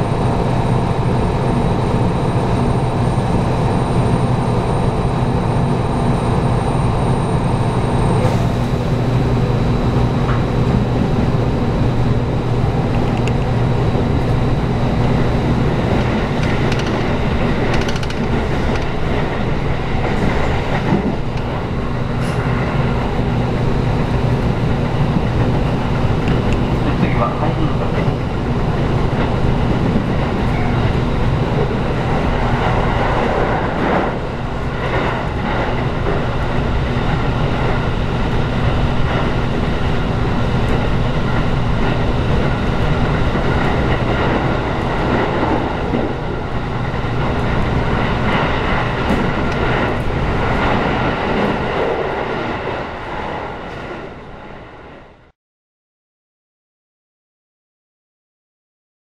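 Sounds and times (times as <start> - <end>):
constant hum: 0.0 - 55.0
train wheels rumbling on rail: 0.0 - 55.3
track knocks: 9.9 - 52.5.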